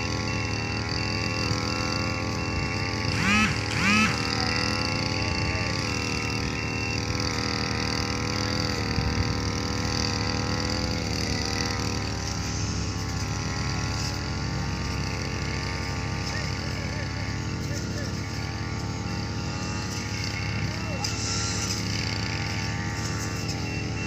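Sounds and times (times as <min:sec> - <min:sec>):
large diesel engine running: 0:00.0 - 0:24.0.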